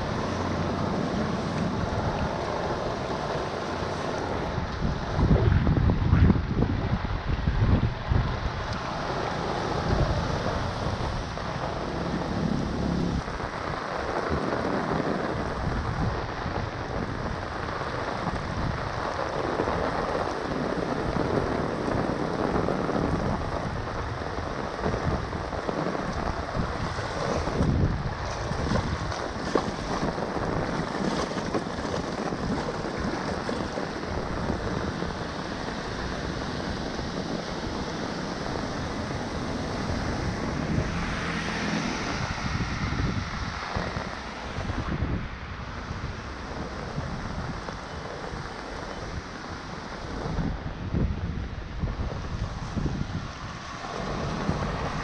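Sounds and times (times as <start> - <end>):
rainwater running into drain: 0.0 - 5.2, 8.3 - 45.4
rain on wet pavement: 0.0 - 55.0.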